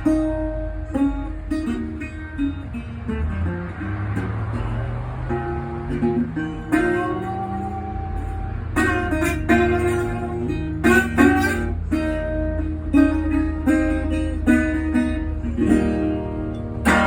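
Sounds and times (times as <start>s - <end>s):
resonator guitar playing blues: 0.0s - 17.0s.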